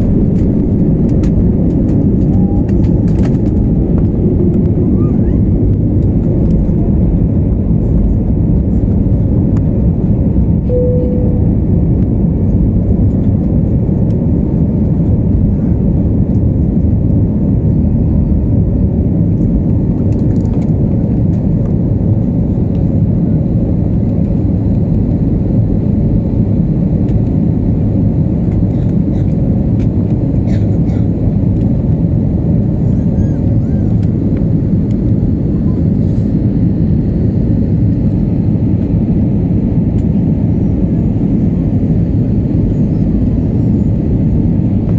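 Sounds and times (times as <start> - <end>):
rushing air: 0.0 - 8.5
airliner engines roaring: 0.0 - 44.9.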